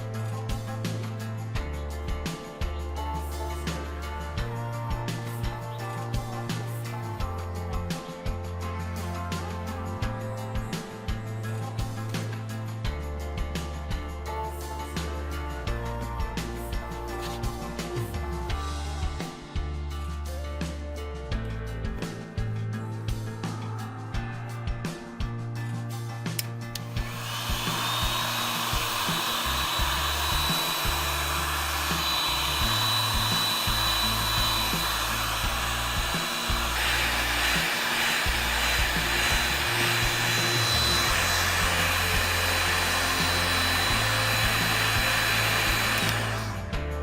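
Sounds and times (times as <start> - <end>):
hot-air blower whining: 26.8 - 46.8.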